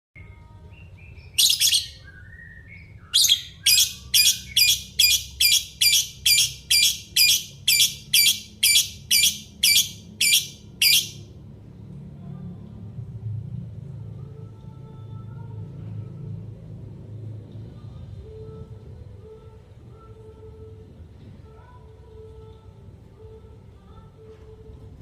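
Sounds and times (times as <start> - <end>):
parrot chirping: 1.2 - 2.1, 2.8 - 11.3
parrot screeching: 3.2 - 11.2.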